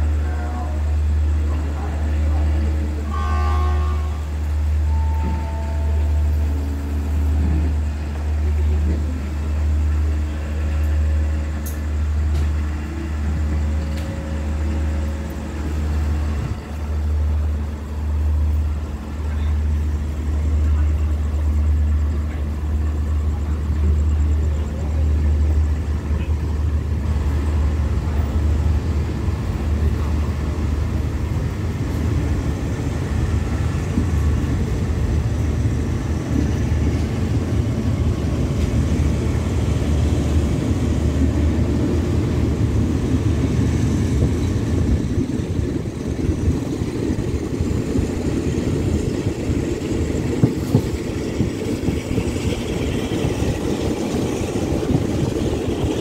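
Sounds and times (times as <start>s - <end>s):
train low rumble: 0.0s - 56.0s
wheels rolling on rails: 24.4s - 56.0s.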